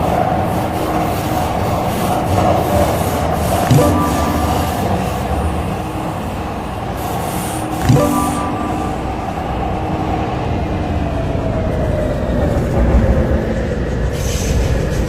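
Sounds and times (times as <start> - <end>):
train wheels rumbling on track: 0.0 - 7.9, 8.7 - 15.0
faint falling tone: 7.8 - 10.1.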